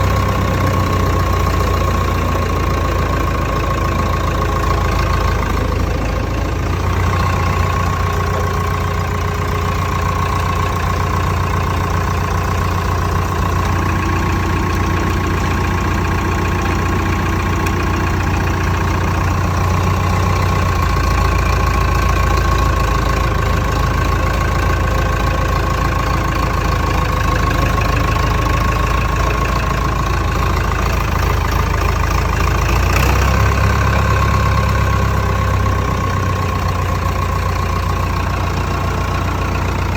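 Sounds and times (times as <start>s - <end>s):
diesel tractor engine idling: 0.0s - 39.9s.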